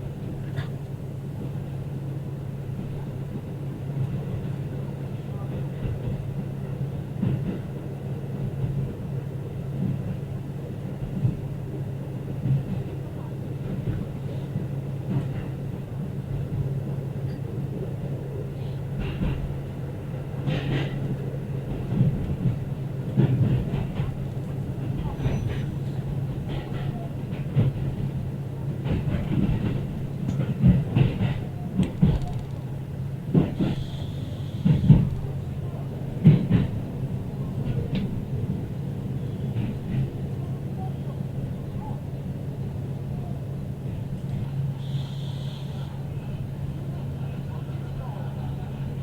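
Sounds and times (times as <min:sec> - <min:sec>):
railcar engine hum: 0:00.0 - 0:49.0
train running low drone: 0:00.0 - 0:49.0
wheels knocking on track: 0:20.4 - 0:34.0, 0:34.6 - 0:35.5.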